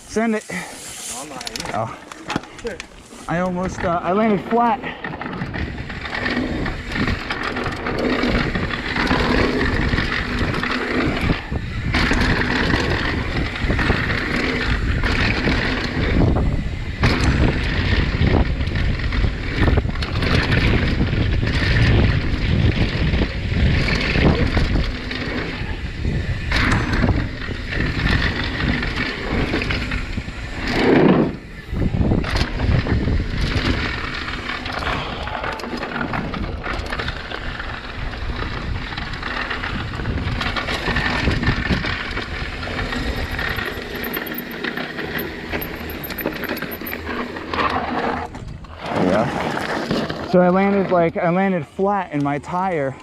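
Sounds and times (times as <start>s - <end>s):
bike rattling: 0.0s - 53.0s
tyres on dirt and rock: 0.1s - 53.0s
wind rushing on microphone: 2.6s - 44.3s.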